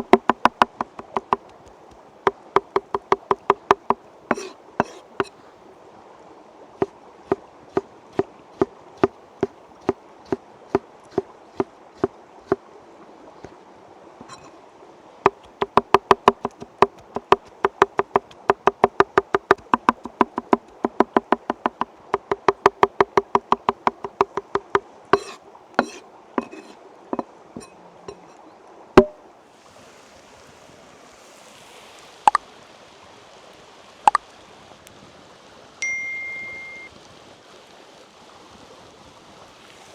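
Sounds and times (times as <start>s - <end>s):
hard object knocking on wood: 0.0s - 5.4s, 7.3s - 11.7s, 15.3s - 28.4s.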